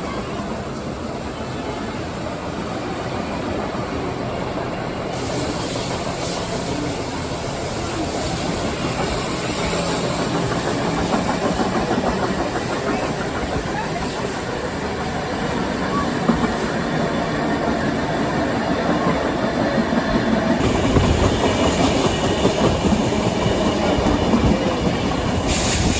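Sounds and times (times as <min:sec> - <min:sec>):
steam train running on rails: 0:00.0 - 0:25.9
steam hiss: 0:04.5 - 0:18.4, 0:20.6 - 0:25.9.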